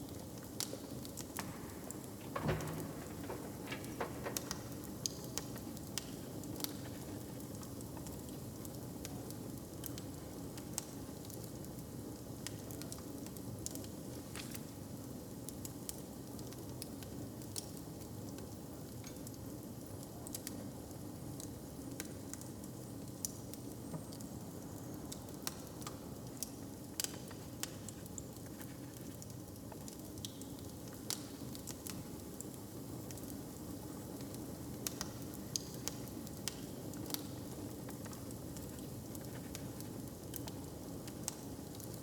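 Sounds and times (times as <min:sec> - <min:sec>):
wood fire crackling: 0:00.0 - 0:42.0
fire popping: 0:00.1 - 0:09.2
low fire rumble: 0:00.1 - 0:11.4.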